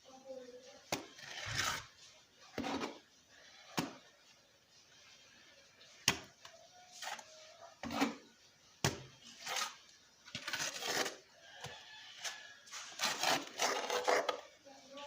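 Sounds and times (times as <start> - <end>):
trowel scraping mortar: 1.1 - 2.0, 7.0 - 8.2, 9.3 - 11.3, 12.2 - 14.4
mortar thrown onto brick wall: 3.7 - 4.0, 6.0 - 6.3, 8.8 - 9.1.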